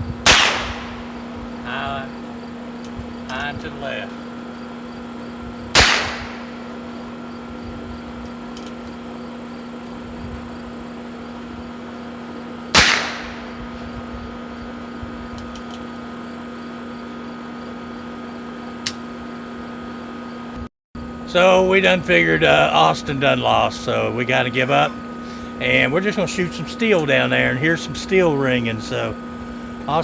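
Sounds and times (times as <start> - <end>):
revolver shots: 0.2 - 1.1, 5.7 - 6.6, 12.7 - 13.6.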